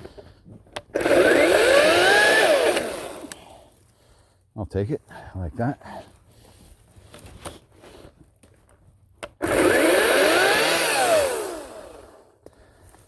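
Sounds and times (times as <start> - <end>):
electric chainsaw motor whining: 0.8 - 3.4, 9.4 - 12.4.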